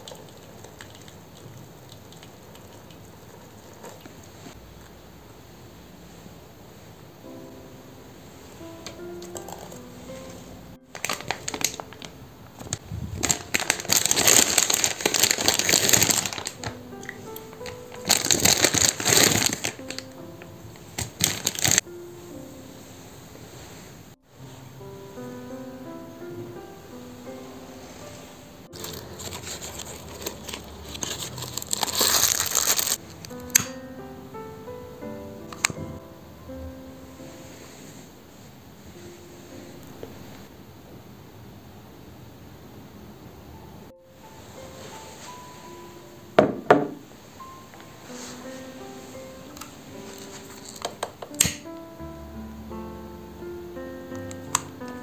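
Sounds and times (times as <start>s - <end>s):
soft background music: 7.0s - 40.5s, 43.5s - 55.0s
crinkling and rustling: 8.8s - 21.8s, 28.6s - 33.7s, 47.0s - 51.5s.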